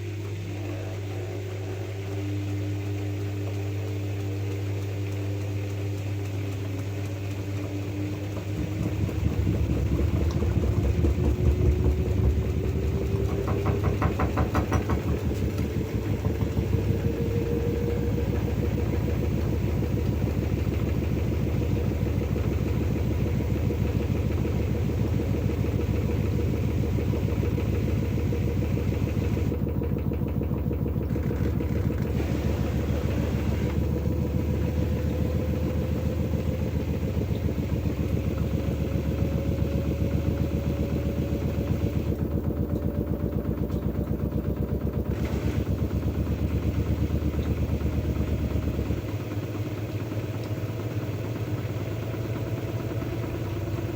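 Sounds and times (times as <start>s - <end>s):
washing machine drum hum: 0.0s - 53.9s
washing machine motor whine: 0.0s - 53.9s.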